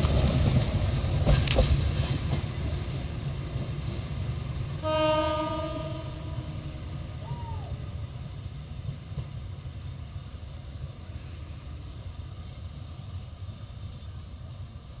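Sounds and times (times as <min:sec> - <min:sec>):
diesel locomotive rumble: 0:00.0 - 0:11.5
insects chirring: 0:00.0 - 0:15.0.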